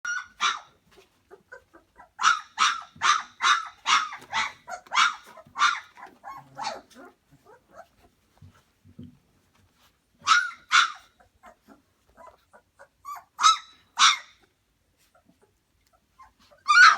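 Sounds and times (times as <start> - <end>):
puppy yelping: 0.1 - 8.0, 10.2 - 16.9
puppy whimpering: 0.1 - 8.2, 10.3 - 14.2, 15.1 - 16.9.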